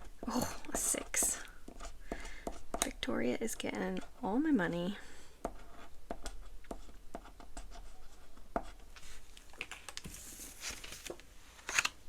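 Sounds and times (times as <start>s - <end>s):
paper bills rustling: 8.9s - 12.0s.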